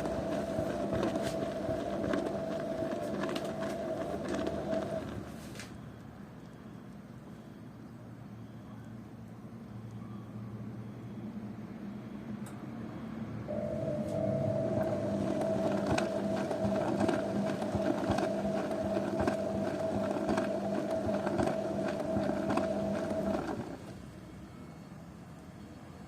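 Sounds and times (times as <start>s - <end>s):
washing machine motor hum: 0.0s - 6.3s, 12.1s - 24.2s.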